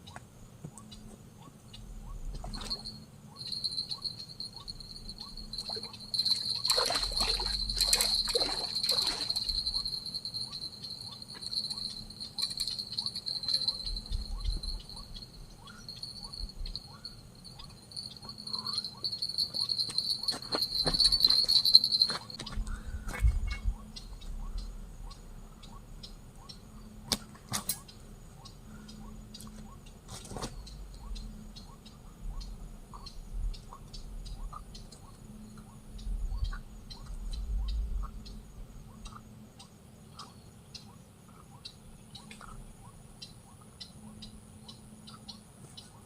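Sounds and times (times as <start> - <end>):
insects trilling: 0.0 - 46.0
knocks and rattles: 19.1 - 23.8.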